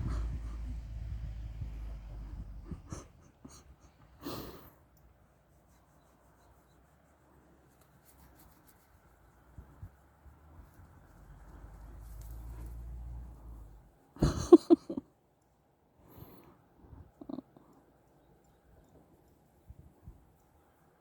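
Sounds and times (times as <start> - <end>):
soft rustling and rubbing: 4.8 - 14.1, 18.1 - 21.0.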